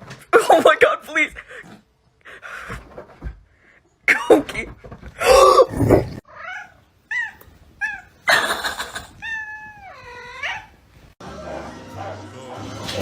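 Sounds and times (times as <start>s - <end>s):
cat meowing: 8.9s - 10.8s.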